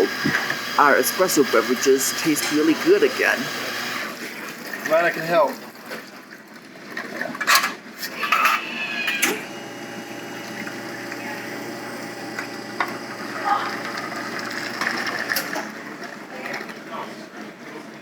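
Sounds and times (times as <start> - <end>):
espresso machine pump humming: 0.0 - 4.2, 8.2 - 16.0
liquid running: 0.0 - 6.3, 8.1 - 17.0
espresso machine clicks and clatter: 9.4 - 15.7.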